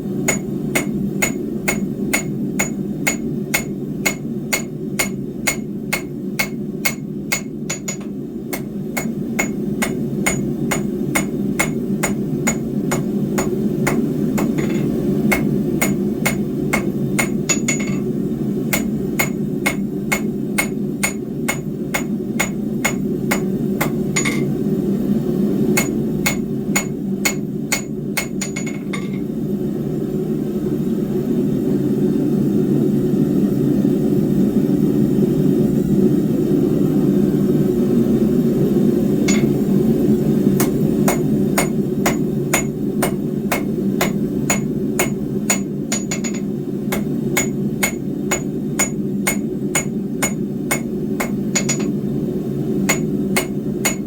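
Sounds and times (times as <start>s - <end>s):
hammer striking hot steel on anvil: 0.2s - 24.6s, 25.7s - 29.3s, 39.2s - 39.7s, 40.6s - 52.0s, 52.8s - 54.0s.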